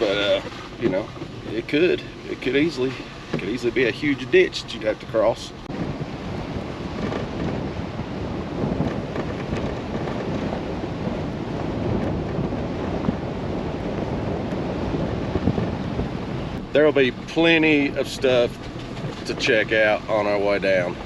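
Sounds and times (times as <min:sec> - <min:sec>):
pickup truck driving on wet dirt: 0:00.0 - 0:21.0.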